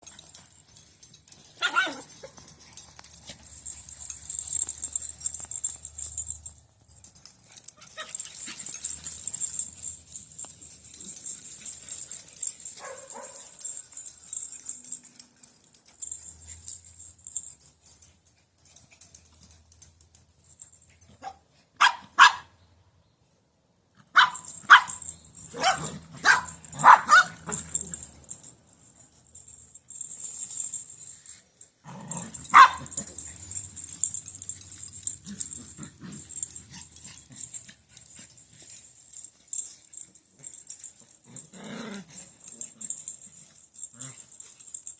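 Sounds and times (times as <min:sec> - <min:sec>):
dog yelp: 0:01.6 - 0:02.5, 0:07.8 - 0:08.8, 0:12.8 - 0:13.5, 0:21.2 - 0:22.5, 0:24.2 - 0:28.0, 0:32.2 - 0:33.5
dogs barking: 0:12.8 - 0:13.6, 0:21.8 - 0:22.5, 0:24.2 - 0:28.1, 0:32.1 - 0:34.0.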